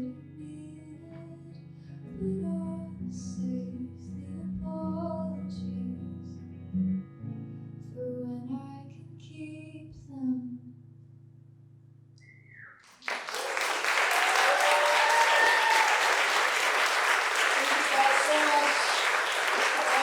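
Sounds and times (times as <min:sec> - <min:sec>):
acoustic guitar: 0:00.0 - 0:10.1.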